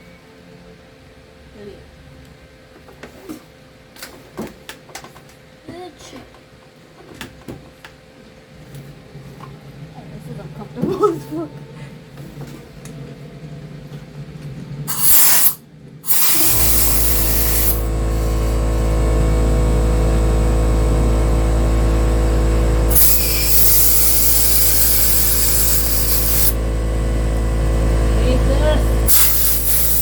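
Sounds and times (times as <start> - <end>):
low machine hum: 8.1 - 14.9, 15.6 - 30.0
compressed air hissing: 14.9 - 18.9, 22.9 - 26.6, 28.9 - 30.0.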